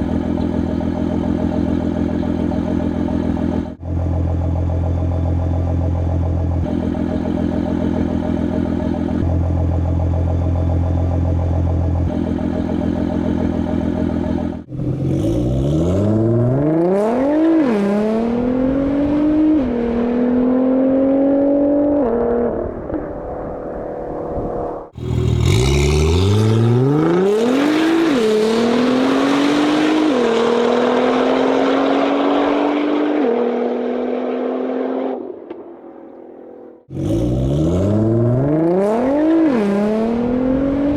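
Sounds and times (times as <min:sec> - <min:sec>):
car engine idling: 0:00.0 - 0:16.6, 0:24.9 - 0:26.9
car accelerating through gears: 0:12.1 - 0:22.8, 0:25.0 - 0:40.9.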